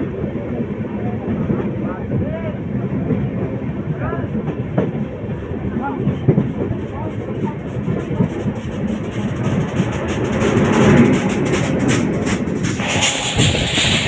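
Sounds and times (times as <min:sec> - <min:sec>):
electric locomotive passing: 0:00.0 - 0:14.0
train coaches rumbling: 0:00.0 - 0:14.0
wheels clacking over rails: 0:06.0 - 0:14.0.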